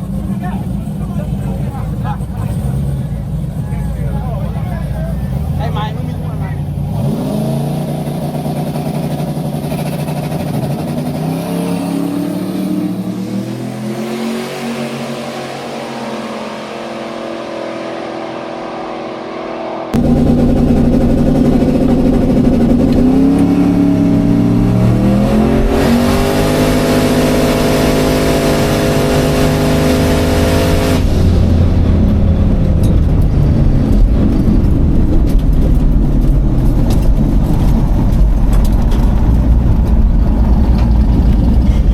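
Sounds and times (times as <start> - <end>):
race car engine revving: 0.0 - 41.9.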